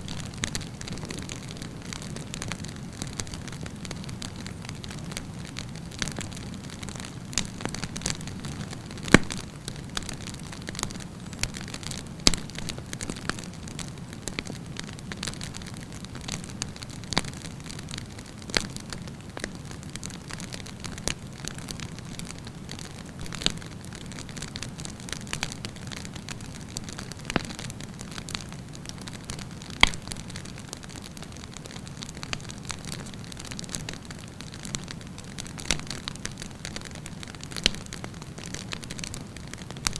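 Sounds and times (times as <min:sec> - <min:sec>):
fire crackling and popping: 0:00.0 - 0:39.9
flames rushing: 0:00.1 - 0:13.6.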